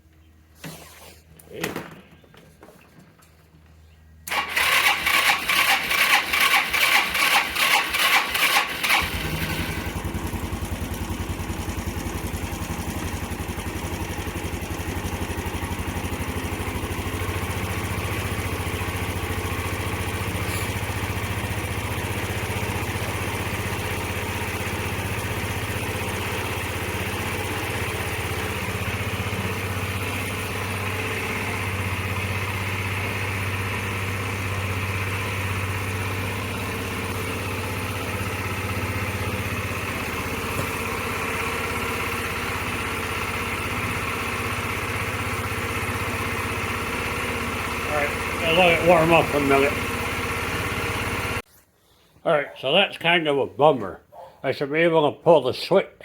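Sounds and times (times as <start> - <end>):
scooter engine cranking: 4.2 - 51.4
scooter engine idling: 4.2 - 51.5.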